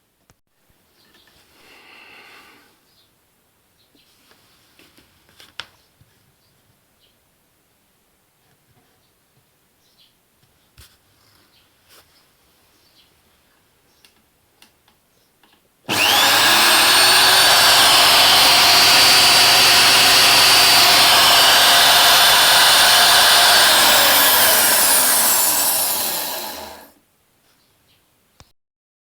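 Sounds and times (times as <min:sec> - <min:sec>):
electric motor whining: 0:15.9 - 0:26.9.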